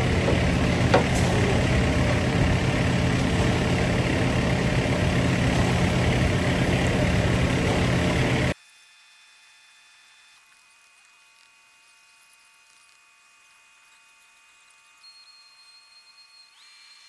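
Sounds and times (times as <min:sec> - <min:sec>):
diesel truck engine running: 0:00.0 - 0:08.6
faint hum: 0:00.0 - 0:08.6.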